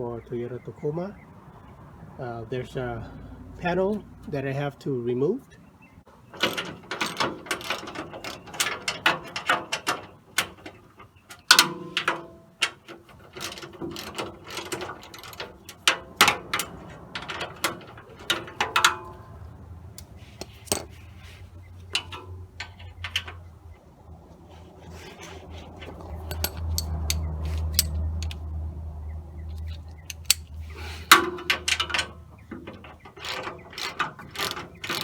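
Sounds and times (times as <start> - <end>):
metallic clinks and knocks: 6.4 - 19.4, 20.0 - 23.6, 25.1 - 28.5, 29.4 - 35.0
socket ratchet clicking: 25.8 - 28.4, 29.5 - 32.0.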